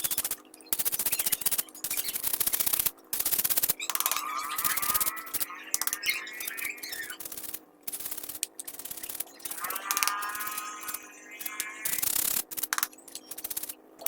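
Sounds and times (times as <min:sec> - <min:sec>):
scratching and rubbing filter: 0:03.3 - 0:12.7.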